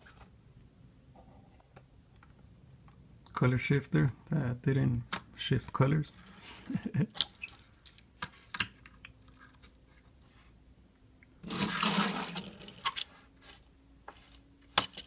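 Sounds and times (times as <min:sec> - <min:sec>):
metal toy cars clicking: 0:11.4 - 0:13.1.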